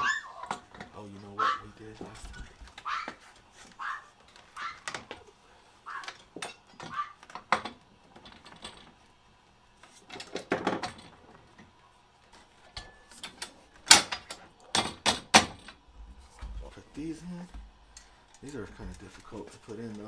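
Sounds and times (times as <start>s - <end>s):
metal parts clicking and clanking: 0.0s - 9.1s, 9.7s - 20.0s.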